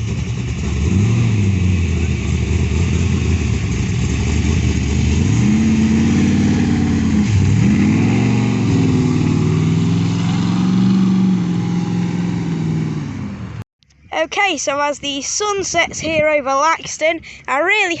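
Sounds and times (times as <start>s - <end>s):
car engine accelerating: 0.0s - 13.6s.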